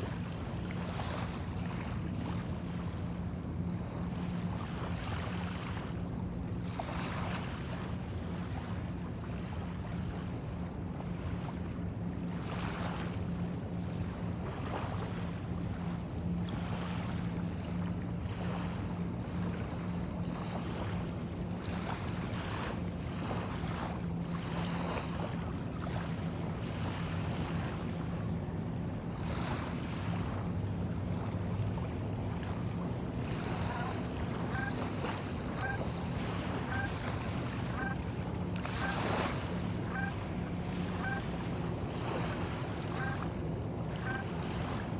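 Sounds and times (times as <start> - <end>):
waves lapping on shore: 0.0 - 44.9.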